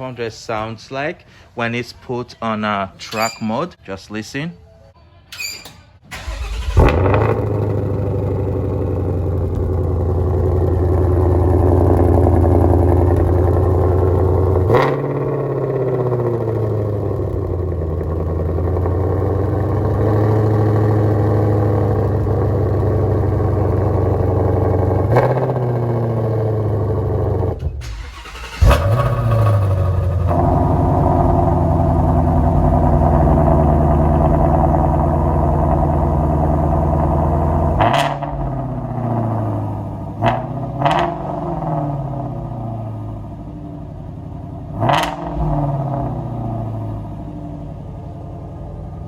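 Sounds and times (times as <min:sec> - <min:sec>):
car engine starting with a bark: 0:06.1 - 0:22.3, 0:25.0 - 0:34.9, 0:37.7 - 0:43.4, 0:44.7 - 0:47.0
loud car engine idling: 0:06.2 - 0:49.0.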